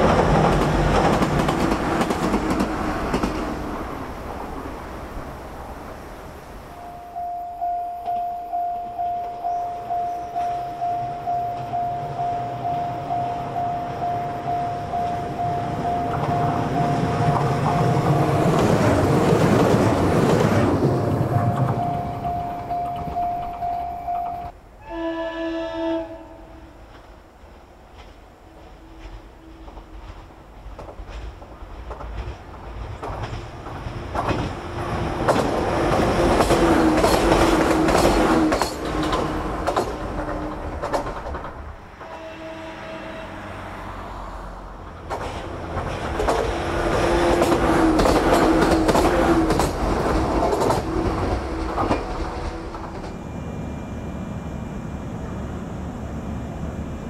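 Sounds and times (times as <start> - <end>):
train rumbling by: 0.0 - 57.0
wheel clicks over rail joints: 35.2 - 41.7.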